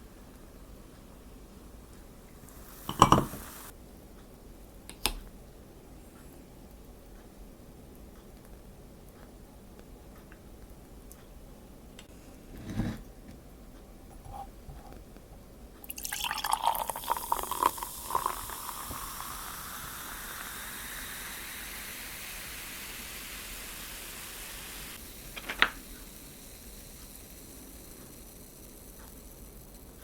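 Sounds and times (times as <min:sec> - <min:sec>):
drink pouring into glass: 0:02.6 - 0:03.7, 0:15.8 - 0:21.0
glass clink: 0:02.9 - 0:03.7, 0:16.0 - 0:19.1.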